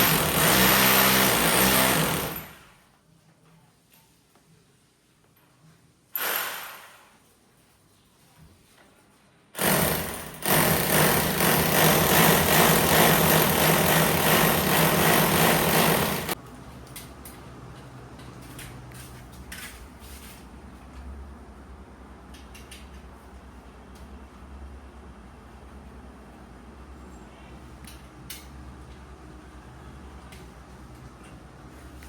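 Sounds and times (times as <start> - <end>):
hammer drill boring into wall: 0.0 - 2.6, 6.2 - 7.0, 9.6 - 16.4.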